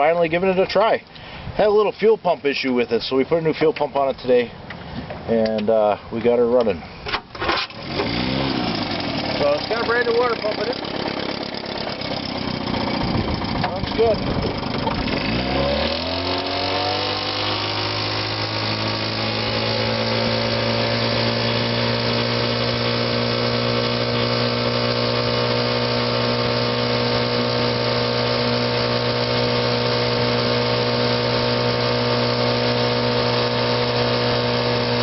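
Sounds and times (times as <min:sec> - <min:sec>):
two-stroke outboard motor running: 0:07.6 - 0:35.0.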